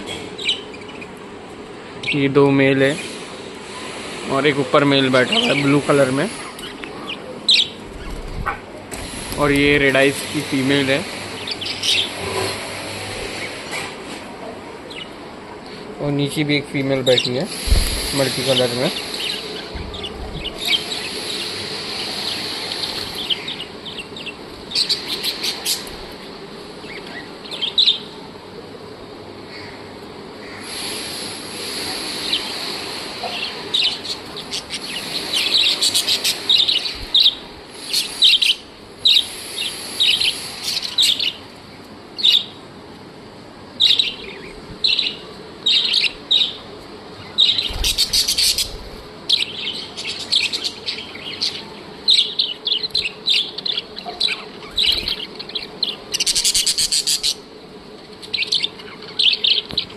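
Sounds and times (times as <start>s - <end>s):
budgerigars chirping and chattering: 0.4s - 1.1s, 5.2s - 12.6s, 17.0s - 25.9s, 32.1s - 41.4s, 42.2s - 42.5s, 43.8s - 46.6s, 47.2s - 57.5s, 58.2s - 59.9s.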